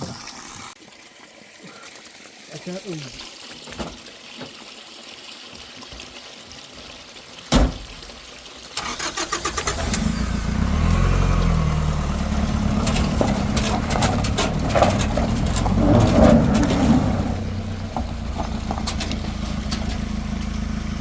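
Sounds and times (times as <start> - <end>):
car engine cranking and starting: 8.8 - 21.0.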